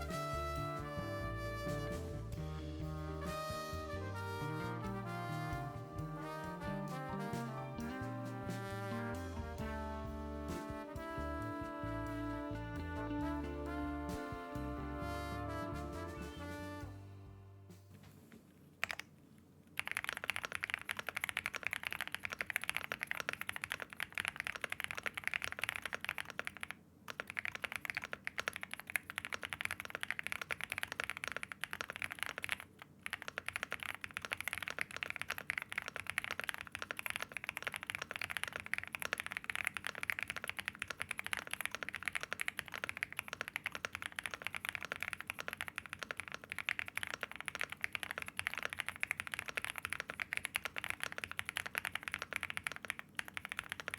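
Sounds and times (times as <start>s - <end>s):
fast typing on mechanical keyboard: 18.8s - 19.1s, 19.8s - 53.9s.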